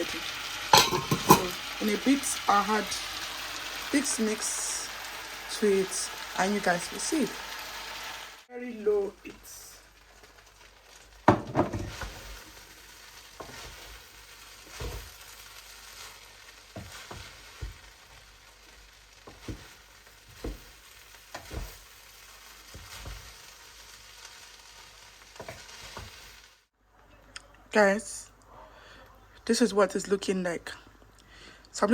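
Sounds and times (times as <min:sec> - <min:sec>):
rice sizzling in pot: 0:00.0 - 0:26.8
spoon knocking against pot: 0:00.8 - 0:01.5.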